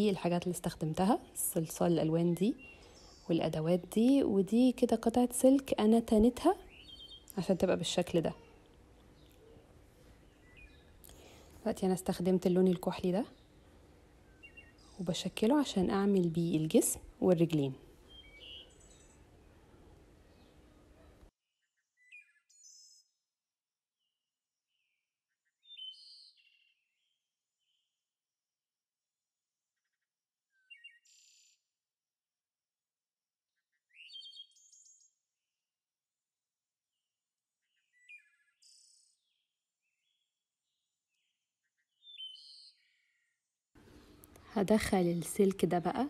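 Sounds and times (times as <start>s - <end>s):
faint bird chirps: 2.0s - 3.9s, 6.3s - 16.8s, 18.0s - 23.2s, 25.3s - 27.9s, 29.8s - 31.6s, 33.6s - 35.3s, 37.6s - 43.5s.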